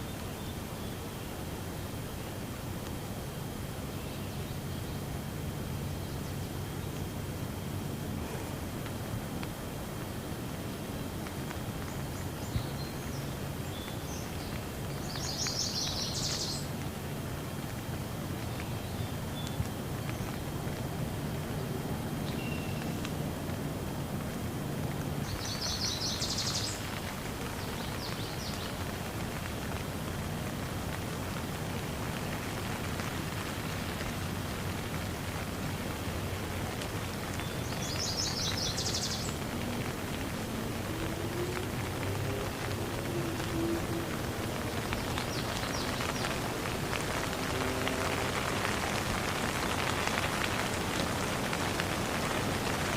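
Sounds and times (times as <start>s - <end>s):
faint drip-like ticks: 0.0s - 52.9s
steady rain hiss: 0.0s - 52.9s
birds chirping: 11.8s - 16.9s, 25.2s - 29.8s, 37.2s - 40.4s, 42.4s - 51.8s.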